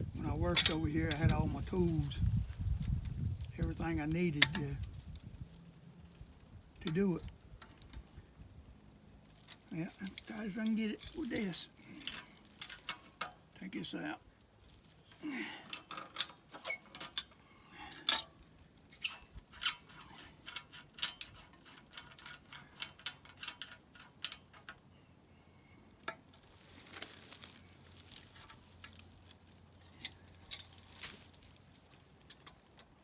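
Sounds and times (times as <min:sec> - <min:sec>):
hand tools clinking on metal: 0:00.5 - 0:02.1, 0:04.2 - 0:05.0, 0:09.4 - 0:13.5, 0:15.1 - 0:24.8.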